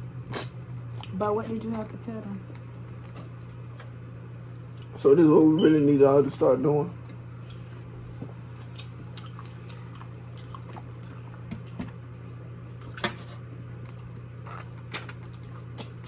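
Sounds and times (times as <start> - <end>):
steady low hum: 0.0 - 16.0
chewing mouth sounds: 8.5 - 11.5, 13.8 - 16.0.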